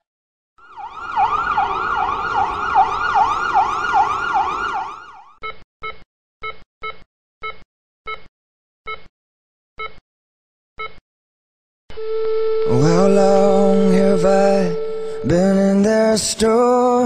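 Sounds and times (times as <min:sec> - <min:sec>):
siren yelping: 0:00.6 - 0:05.4, 0:12.0 - 0:15.7
short electronic beeps: 0:12.0 - 0:15.8.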